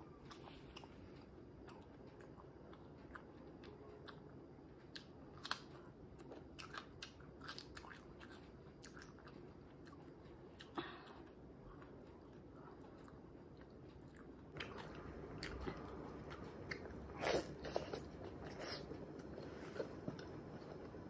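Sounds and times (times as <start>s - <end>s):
wet chewing and crunchy bites: 4.9s - 10.7s.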